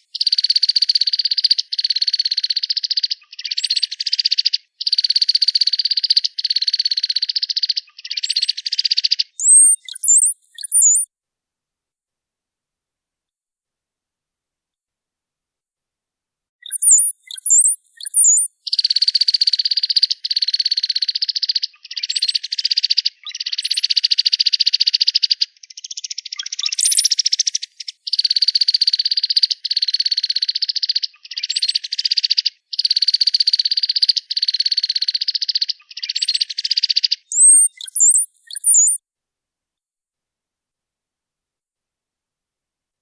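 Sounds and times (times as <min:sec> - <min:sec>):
cowbird song: 0:00.0 - 0:11.1, 0:16.6 - 0:39.0.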